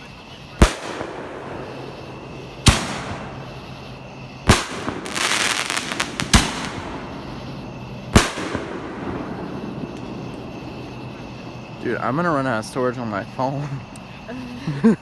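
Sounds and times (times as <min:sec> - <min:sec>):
fireworks bangs: 0:00.0 - 0:14.2
fireworks crackling: 0:00.0 - 0:14.5.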